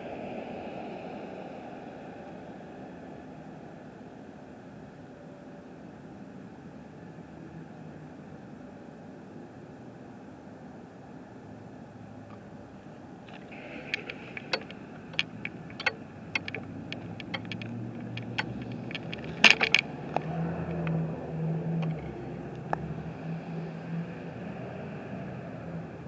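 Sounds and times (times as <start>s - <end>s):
clatters: 13.3s - 21.0s
sharp ticks and clicks: 13.4s - 20.9s.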